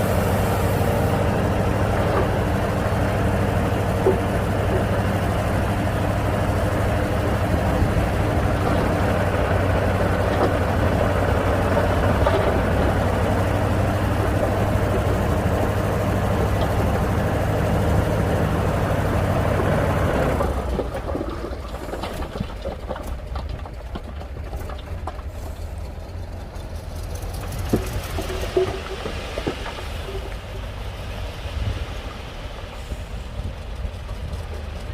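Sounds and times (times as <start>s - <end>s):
heavy diesel engine running: 0.0s - 34.9s.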